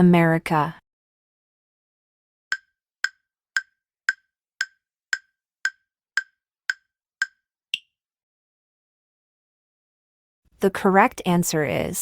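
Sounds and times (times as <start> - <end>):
clock-like ticking: 2.5 - 7.4.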